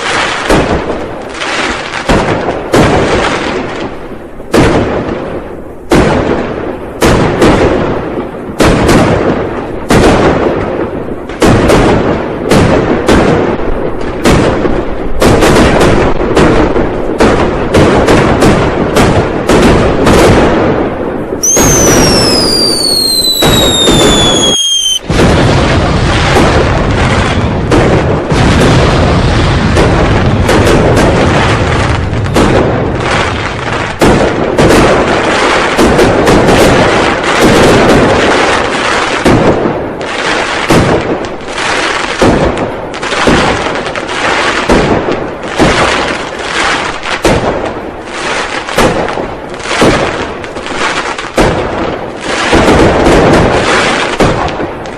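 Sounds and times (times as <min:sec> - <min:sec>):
firecrackers banging: 0:00.0 - 0:54.9
falling firework whistle: 0:21.4 - 0:25.1.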